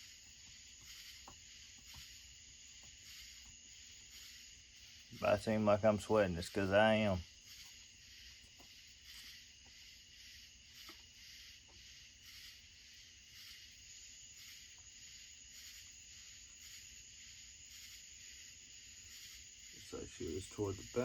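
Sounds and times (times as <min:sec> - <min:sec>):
high-pitched insect chirring: 0:00.0 - 0:21.0.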